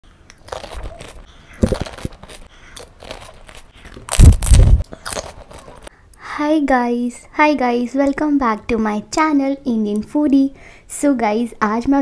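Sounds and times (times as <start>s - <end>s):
crunching and chewing food: 0.2s - 5.9s.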